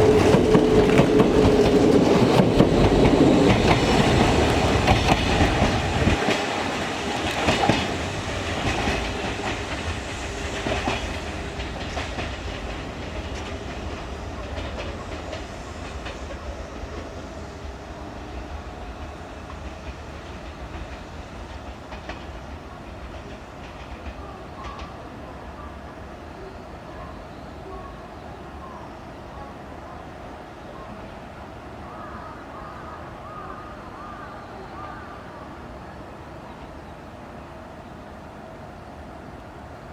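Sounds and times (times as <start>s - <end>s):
train wheels clattering over rails: 0.0s - 25.0s.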